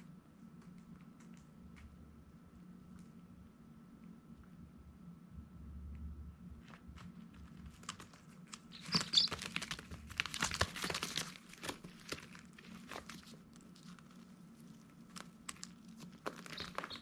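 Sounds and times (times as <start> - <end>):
chicks rustling and scratching: 6.5 - 17.0
chicks peeping: 8.6 - 11.1, 16.3 - 17.0.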